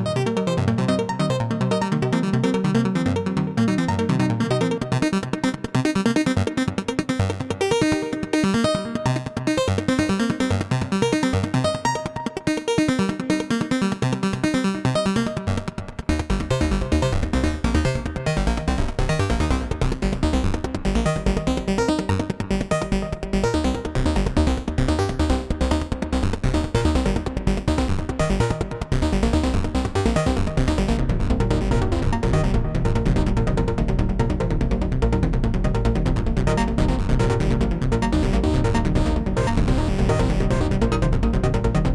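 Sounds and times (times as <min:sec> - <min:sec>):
deep synth bass: 0:26.4 - 0:41.9.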